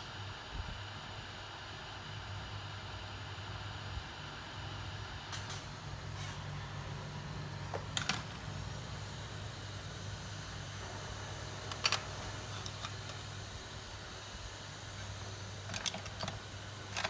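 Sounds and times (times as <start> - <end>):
low fan hum: 3.5 - 17.0.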